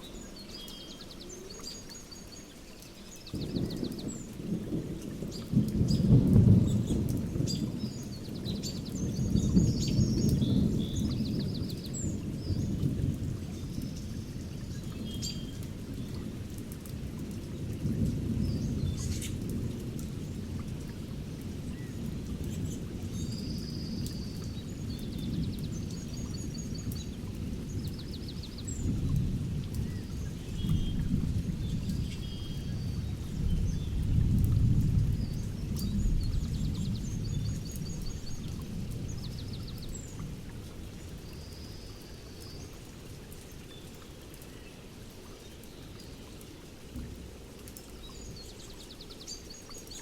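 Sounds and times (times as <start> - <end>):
songbirds trilling: 0.0 - 16.8
steady rain: 0.0 - 50.0
thunder rumbling: 3.3 - 41.0.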